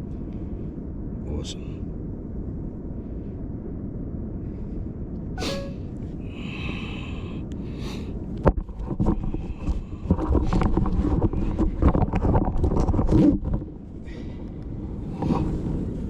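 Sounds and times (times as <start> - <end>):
wind and surf rumble: 0.0 - 16.0
breathy sniffs: 5.4 - 5.8.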